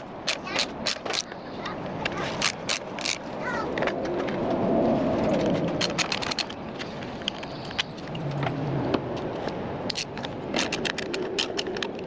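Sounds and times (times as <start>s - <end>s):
ratchet wrench clicking: 2.4s - 3.2s.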